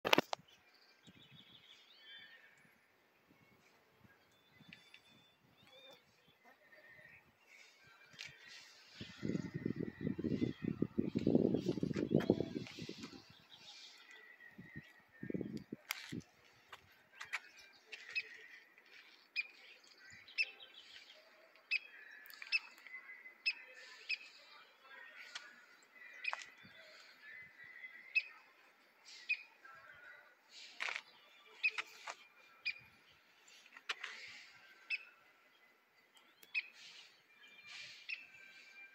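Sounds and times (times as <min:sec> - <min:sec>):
birds chirping: 0:00.1 - 0:38.9.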